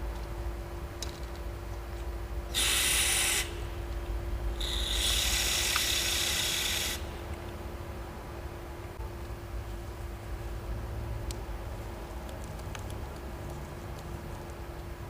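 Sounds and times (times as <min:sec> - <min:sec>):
pressurised spray hissing: 0:02.5 - 0:03.7, 0:04.6 - 0:07.2.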